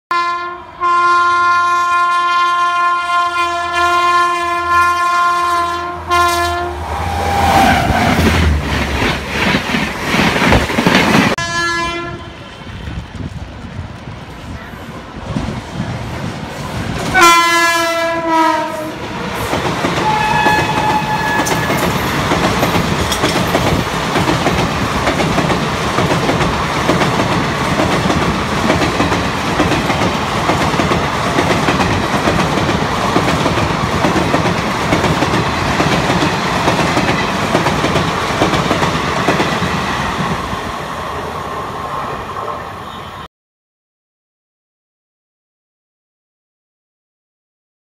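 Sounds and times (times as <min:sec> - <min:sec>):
locomotive horn chord: 0:00.1 - 0:07.0, 0:11.4 - 0:12.4, 0:17.2 - 0:19.0
train wheels rushing on rails: 0:06.7 - 0:11.4, 0:12.1 - 0:43.2.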